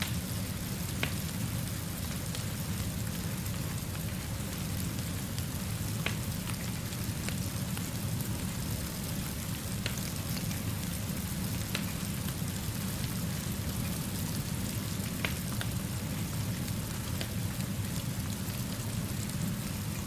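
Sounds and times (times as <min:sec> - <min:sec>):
steady rainfall: 0:00.0 - 0:20.0
wood fire crackling: 0:00.0 - 0:20.0.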